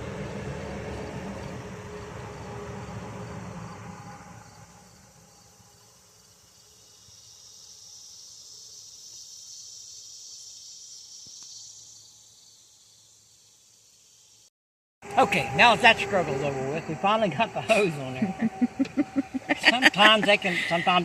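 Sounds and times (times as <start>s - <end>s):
vehicle passing: 0.0s - 5.4s, 15.0s - 21.0s
high-pitched insect chirring: 6.2s - 14.5s, 15.3s - 21.0s.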